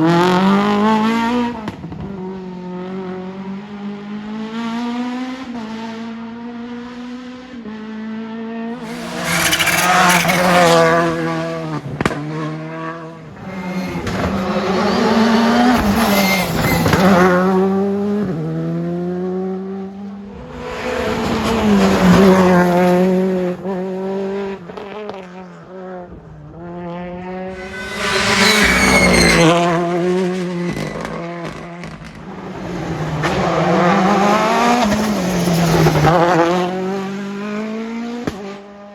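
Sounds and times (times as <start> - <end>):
cars passing by: 8.8 - 24.2, 27.4 - 38.2
rally car engines revving: 8.8 - 26.8, 27.4 - 38.9.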